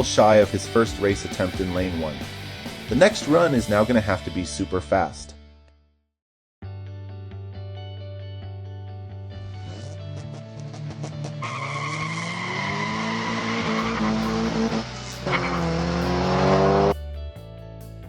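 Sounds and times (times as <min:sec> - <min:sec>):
background music: 0:00.0 - 0:05.8, 0:06.6 - 0:18.0
race car engine revving: 0:10.3 - 0:17.0.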